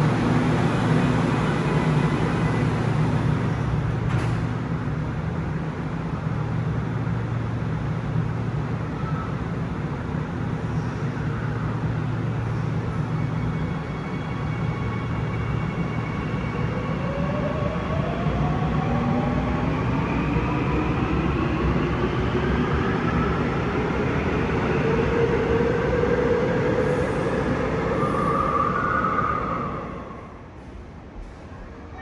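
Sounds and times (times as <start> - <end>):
electric train humming: 0.0 - 4.1.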